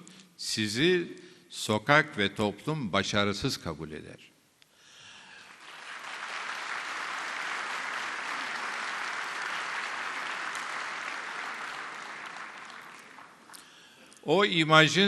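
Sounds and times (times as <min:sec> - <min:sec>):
audience applauding: 0:05.4 - 0:13.7.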